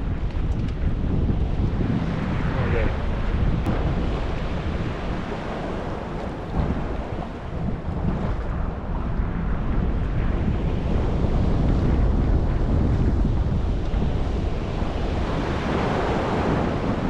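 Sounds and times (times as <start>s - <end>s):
wind buffeting microphone: 0.0s - 17.0s
water moving around boat: 1.4s - 17.0s.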